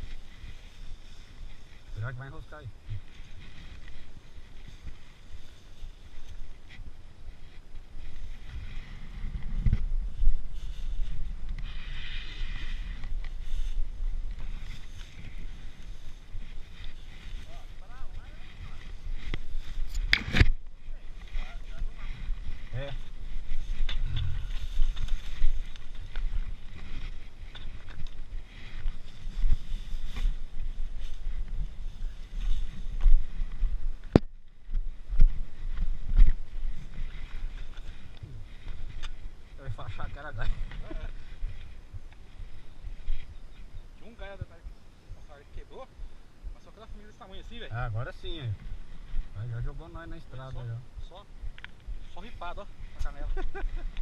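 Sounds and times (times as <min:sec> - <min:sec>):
mountain bike rumbling on trail: 0:00.0 - 0:43.5
wind buffeting microphone: 0:00.0 - 0:54.0.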